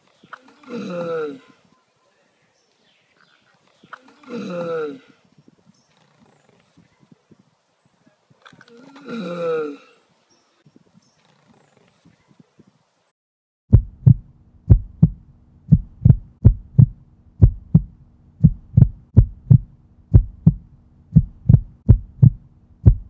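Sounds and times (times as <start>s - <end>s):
faint low sounds: 13.7s - 23.0s
heartbeat thumps: 13.7s - 23.0s
low hum: 13.7s - 23.0s.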